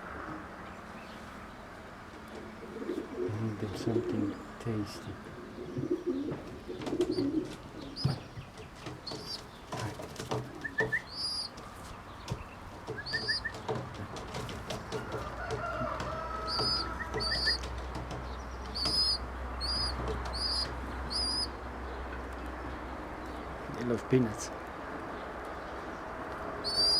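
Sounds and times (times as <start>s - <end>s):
high chirping calls: 2.9s - 14.0s, 15.5s - 24.0s, 26.6s - 26.9s
pecking taps: 5.8s - 21.5s
pigeon wings flapping: 12.3s - 19.2s.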